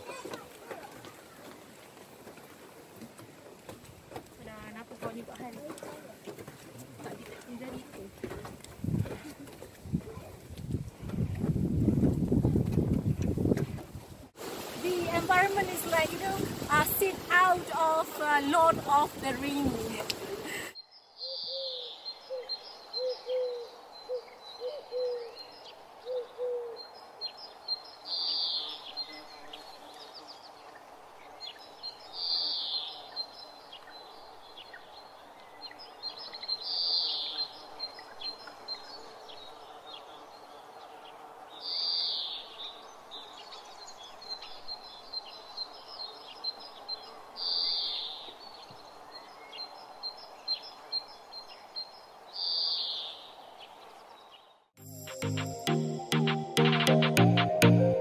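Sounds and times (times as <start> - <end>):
low hooting notes: 54.8 - 58.0.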